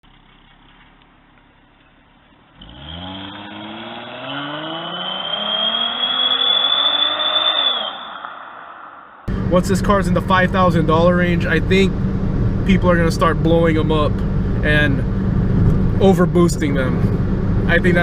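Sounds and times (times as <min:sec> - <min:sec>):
car engine accelerating hard: 0:02.2 - 0:18.0
high thin whistle: 0:05.1 - 0:08.6.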